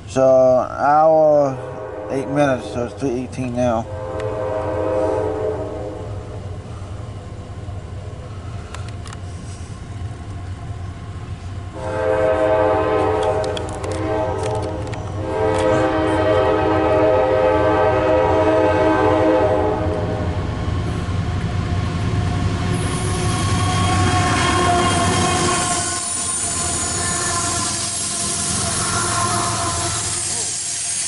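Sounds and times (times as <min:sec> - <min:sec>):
train approaching: 0:00.0 - 0:31.0
locomotive horn blasts: 0:01.5 - 0:06.2, 0:11.8 - 0:20.4, 0:23.0 - 0:30.6.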